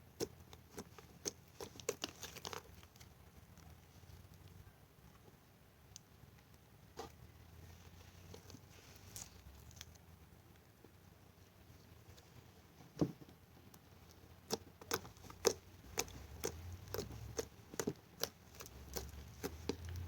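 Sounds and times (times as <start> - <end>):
slime squishing: 0.0 - 4.6, 6.9 - 10.2, 13.6 - 20.0
sticky clicks and pops: 14.5 - 20.0.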